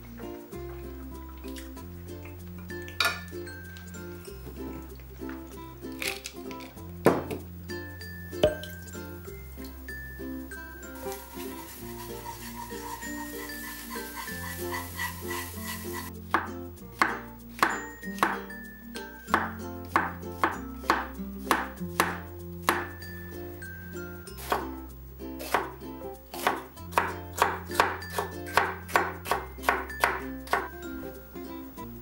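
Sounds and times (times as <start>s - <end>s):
knife chopping on wooden board: 16.3s - 18.5s, 19.3s - 23.0s, 25.4s - 25.7s, 26.3s - 30.7s.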